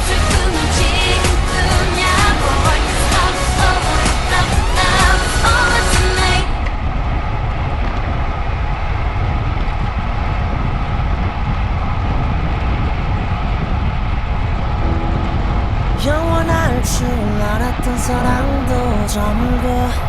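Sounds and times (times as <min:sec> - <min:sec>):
music: 0:00.0 - 0:06.5, 0:14.8 - 0:16.8
wind rumbling on microphone: 0:00.0 - 0:20.0.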